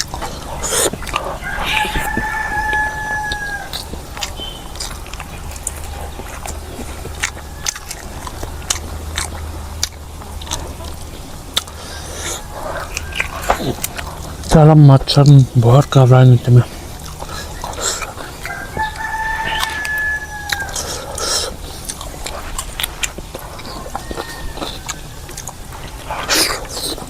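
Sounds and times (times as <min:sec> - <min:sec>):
chewing and biting clicks: 0:00.0 - 0:27.0
steady low hum: 0:00.0 - 0:27.0
rooster crowing: 0:01.2 - 0:04.7, 0:07.2 - 0:08.7, 0:11.9 - 0:14.4, 0:18.2 - 0:21.4, 0:23.6 - 0:26.3.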